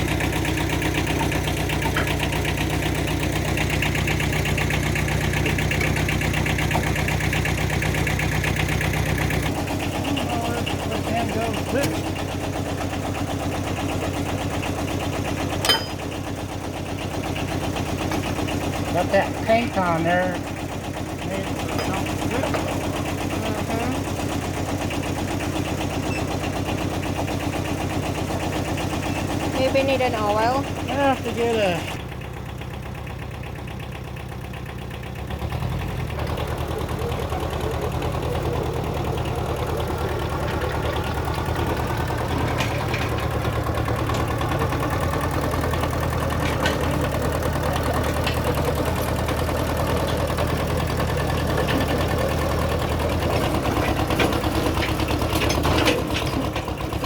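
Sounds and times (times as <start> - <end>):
dozer engine idling: 0.0 - 57.0.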